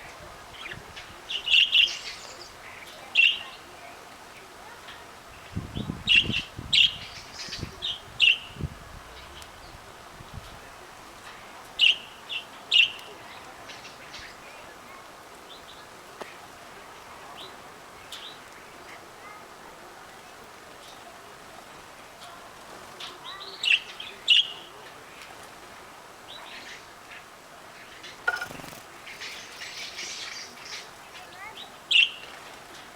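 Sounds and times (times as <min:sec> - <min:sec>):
canaries chirping: 0:27.9 - 0:32.2.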